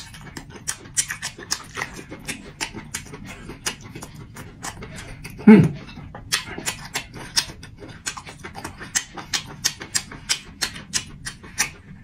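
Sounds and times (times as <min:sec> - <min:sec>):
person chewing and lip smacking: 0:00.0 - 0:12.0.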